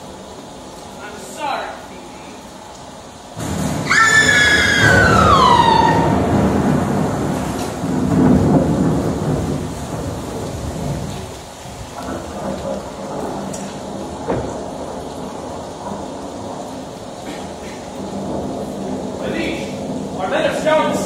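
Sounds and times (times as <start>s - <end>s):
rolling thunder rumble: 1.7s - 21.0s
high falling cry: 3.8s - 6.6s.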